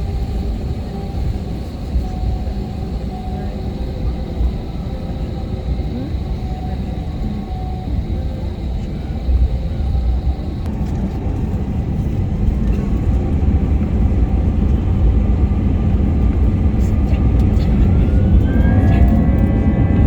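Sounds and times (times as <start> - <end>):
faint high whine: 0.0 - 10.7
jet engine rumble: 0.0 - 20.0.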